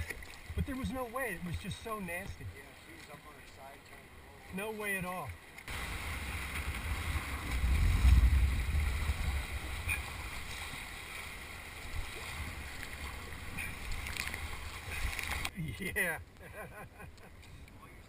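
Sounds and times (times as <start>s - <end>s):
wind rumble on microphone: 5.7s - 10.9s
river water hissing: 5.7s - 15.6s.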